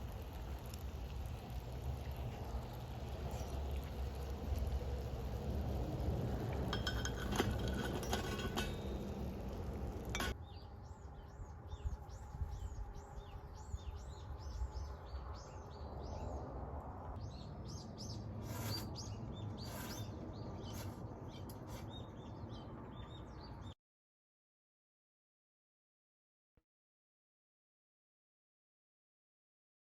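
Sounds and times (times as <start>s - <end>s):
light clinks: 6.7s - 10.4s
small bird chirping: 17.2s - 23.8s.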